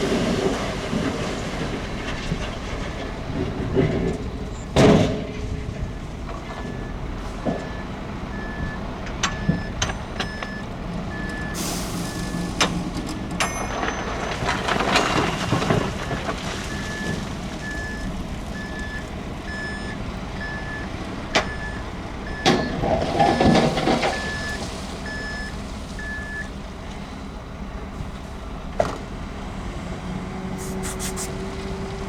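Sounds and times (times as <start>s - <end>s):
diesel engine running: 0.0s - 32.0s
reversing alarm beeping: 6.5s - 12.7s, 16.0s - 26.5s
gravel and rock scraping: 11.9s - 19.4s.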